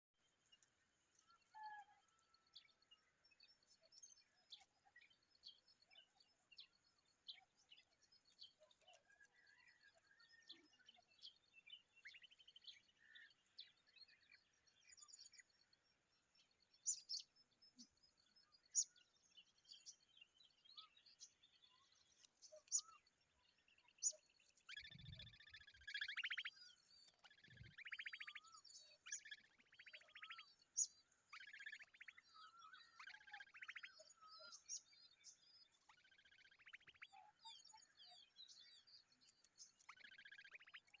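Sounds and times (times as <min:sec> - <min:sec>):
birds chirping: 0:16.4 - 0:41.0.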